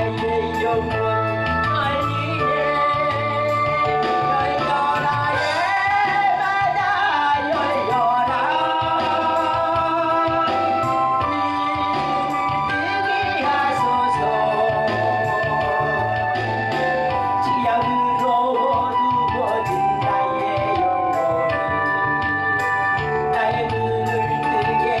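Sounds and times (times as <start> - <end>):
person singing: 0.0 - 22.0, 23.1 - 25.0
keyboard accompaniment: 0.0 - 25.0
steady bass line: 0.0 - 25.0.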